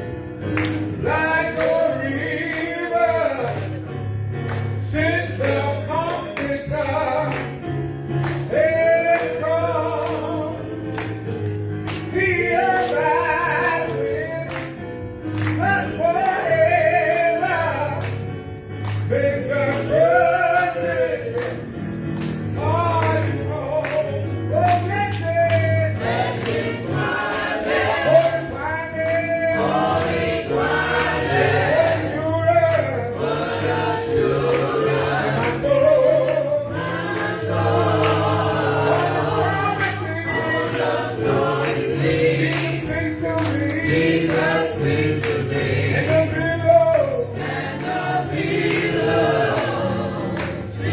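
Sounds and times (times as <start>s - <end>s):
choir singing gospel: 0.0s - 50.9s.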